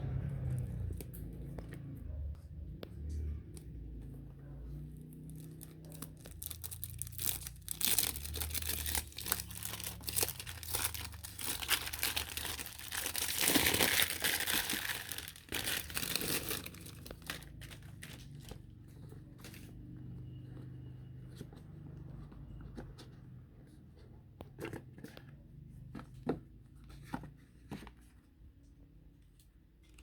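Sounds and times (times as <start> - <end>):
plastic wrap crinkling and tearing: 5.3 - 18.6.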